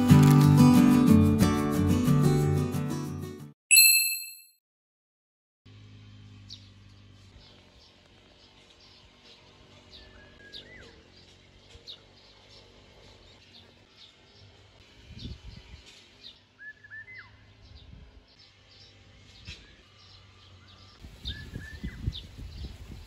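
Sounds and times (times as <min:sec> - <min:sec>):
small birds chirping: 0:06.4 - 0:23.0.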